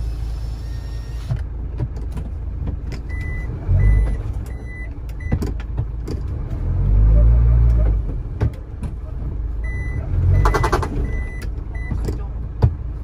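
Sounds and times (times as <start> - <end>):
truck engine rumbling: 0.0 - 13.0
reversing alarm beeps: 9.6 - 12.0
sharp clicks: 10.4 - 11.5.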